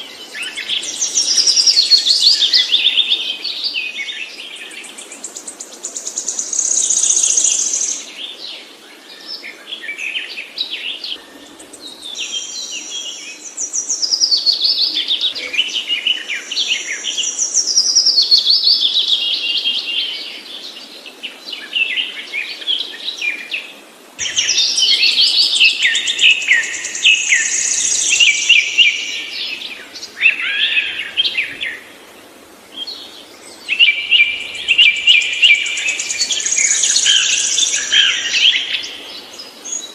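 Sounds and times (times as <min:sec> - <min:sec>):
songbird trilling and chirping: 0:24.2 - 0:31.9, 0:32.8 - 0:39.9.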